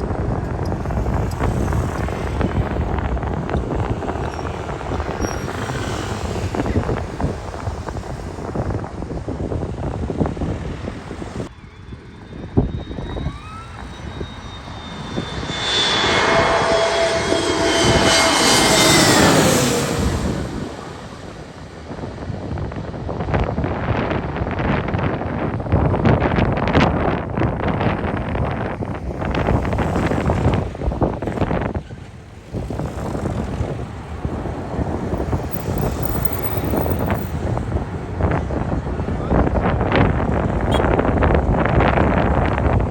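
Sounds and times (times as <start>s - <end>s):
airliner engines whining: 0.0s - 23.1s, 31.8s - 41.6s
wind buffeting microphone: 0.0s - 42.9s.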